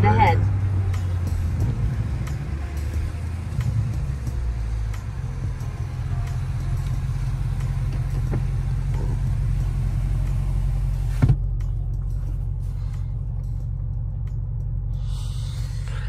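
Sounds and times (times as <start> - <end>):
car engine idling: 0.0 - 16.0
short thump: 11.1 - 11.4.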